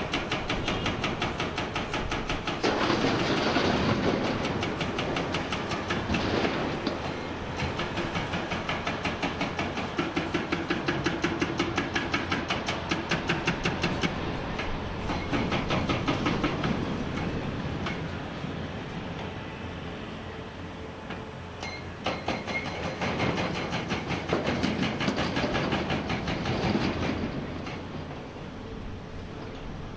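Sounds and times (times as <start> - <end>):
hydraulic breaker hammer pounding rock: 0.0 - 6.9, 7.6 - 14.2, 15.0 - 17.3, 22.0 - 27.8.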